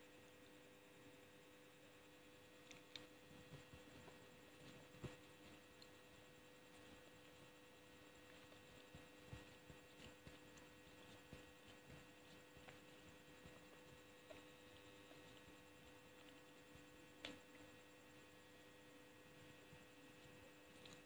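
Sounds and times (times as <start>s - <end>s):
faint electrical hum: 0.0s - 21.0s.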